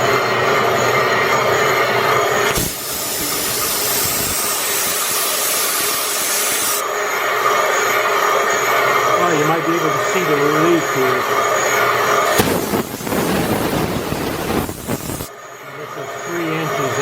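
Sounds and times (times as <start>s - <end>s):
machinery humming: 0.0s - 17.0s
loud even hiss: 2.4s - 6.9s, 12.2s - 15.3s.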